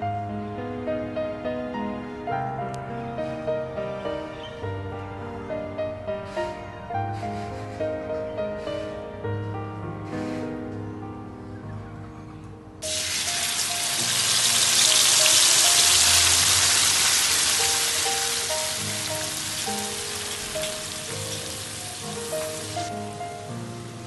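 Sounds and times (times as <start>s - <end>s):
soft background music: 0.0s - 24.0s
food sizzling in hot oil: 12.8s - 23.2s.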